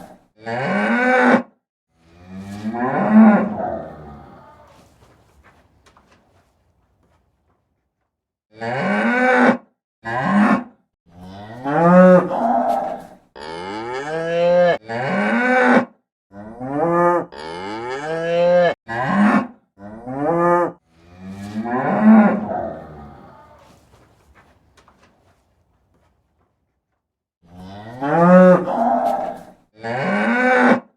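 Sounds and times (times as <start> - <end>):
cattle mooing: 0.0 - 1.4, 2.0 - 4.8, 8.6 - 23.8, 27.5 - 30.8.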